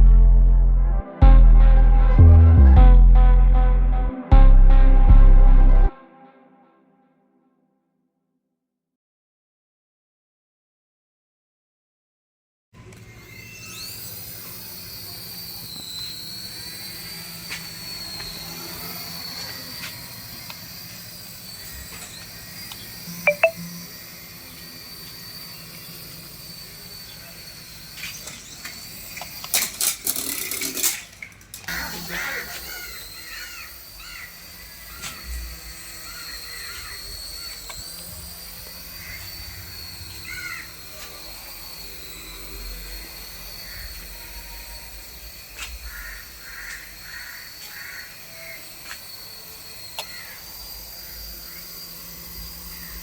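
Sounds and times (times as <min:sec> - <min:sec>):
steady high whine: 0:13.0 - 0:53.0
loud rattling noise: 0:28.2 - 0:42.1
birds calling: 0:31.7 - 0:37.9, 0:38.7 - 0:40.9, 0:45.6 - 0:48.8, 0:50.0 - 0:53.0.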